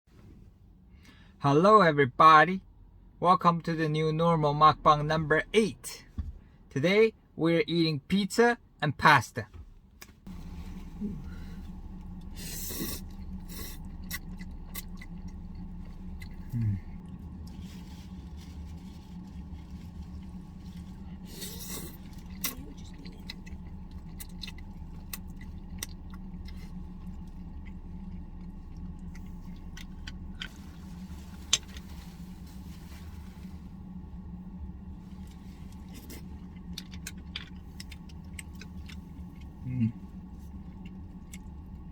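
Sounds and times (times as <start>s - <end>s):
low steady hum: 0.1s - 41.9s
slurping and chewing: 11.9s - 17.9s, 20.0s - 30.6s, 35.2s - 41.8s.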